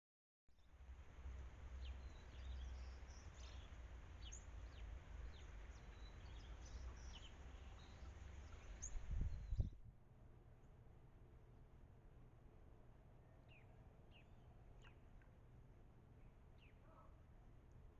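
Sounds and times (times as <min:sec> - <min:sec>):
small birds chirping: 0:01.7 - 0:09.8, 0:13.3 - 0:15.4, 0:16.2 - 0:17.2.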